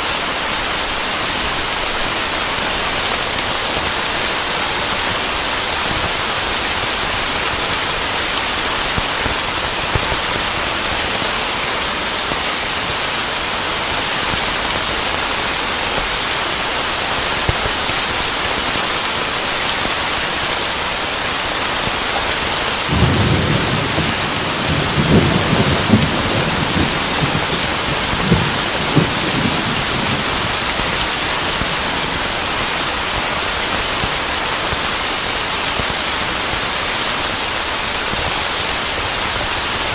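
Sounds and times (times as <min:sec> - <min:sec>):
heavy rain falling: 0:00.0 - 0:39.9
thunder rumbling and cracking: 0:21.9 - 0:33.2.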